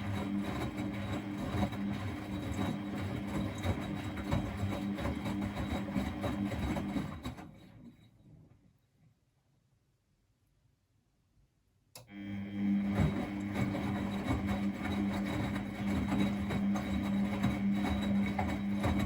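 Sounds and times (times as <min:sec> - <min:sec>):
washing machine motor humming: 0:00.0 - 0:07.4, 0:12.1 - 0:19.0
washing machine knocking: 0:12.8 - 0:19.0.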